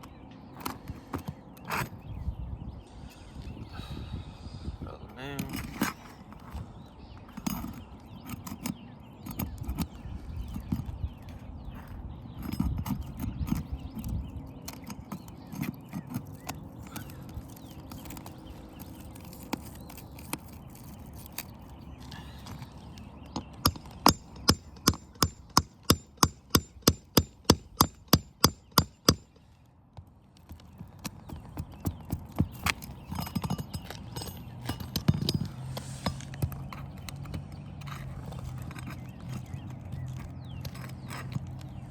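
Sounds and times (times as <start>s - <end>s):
shingles scraping and rustling: 9.4s - 24.8s, 30.2s - 41.9s.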